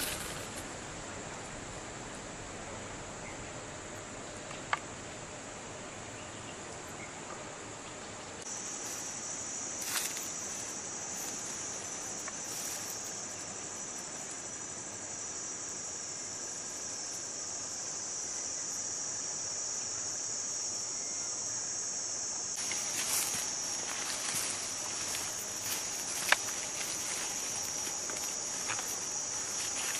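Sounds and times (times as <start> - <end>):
rustling in dry vegetation: 0.0 - 0.8, 8.5 - 14.7, 22.6 - 29.9
insects chirring: 0.0 - 29.9.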